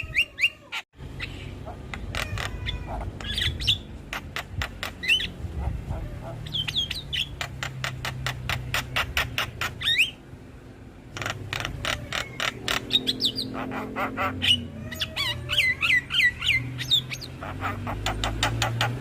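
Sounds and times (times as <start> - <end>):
bird song with clicks and whistles: 3.2 - 5.4, 6.5 - 10.2, 14.4 - 19.0.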